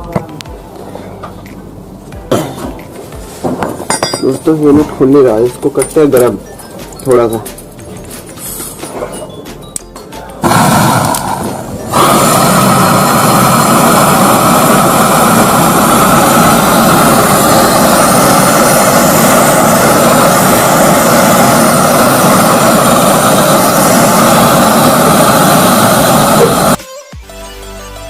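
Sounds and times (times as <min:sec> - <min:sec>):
welding torch flame roaring: 0:10.4 - 0:26.8.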